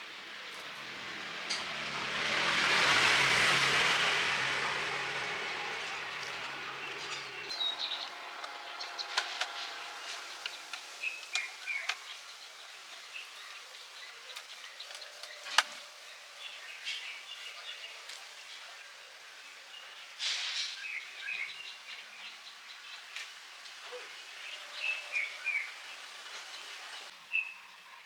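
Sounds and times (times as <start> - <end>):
low vehicle rumble: 0.0 - 12.0
birds chirping: 0.0 - 28.0.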